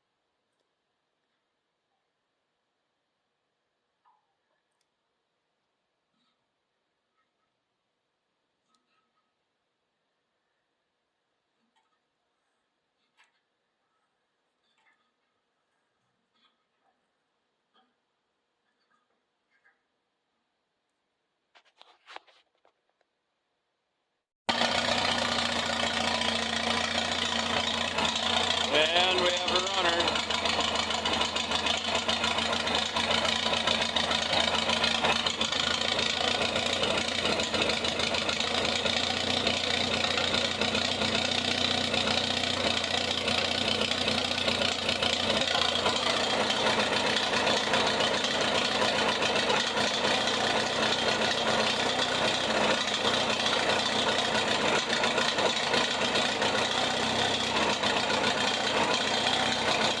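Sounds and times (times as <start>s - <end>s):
gasoline engine running: 24.5s - 60.0s.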